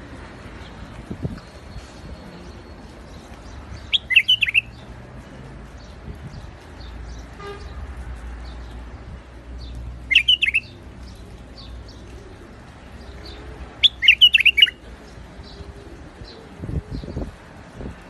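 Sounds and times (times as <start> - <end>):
small birds chirping: 0.5 - 17.4
bird singing warbled phrases: 0.6 - 4.9, 9.6 - 17.3.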